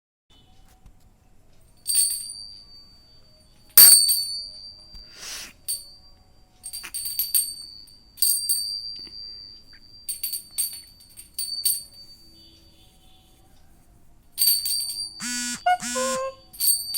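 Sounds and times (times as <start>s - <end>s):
jingle bell jangling: 1.9s - 2.8s, 3.8s - 12.8s, 14.4s - 15.2s, 16.1s - 16.9s.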